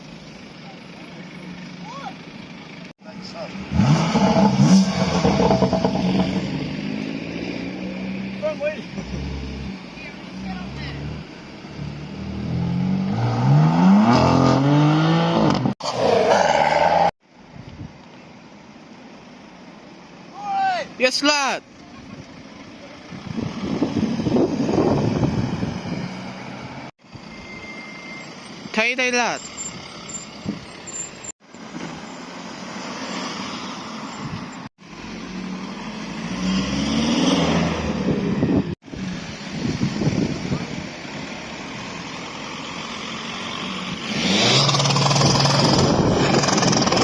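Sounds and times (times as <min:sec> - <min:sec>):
car engine accelerating hard: 0:03.2 - 0:09.8, 0:35.2 - 0:40.8, 0:43.1 - 0:47.0.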